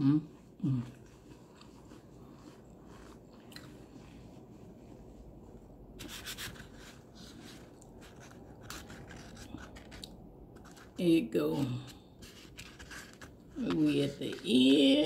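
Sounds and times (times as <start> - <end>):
chewing with mouth closed: 0.4 - 4.3.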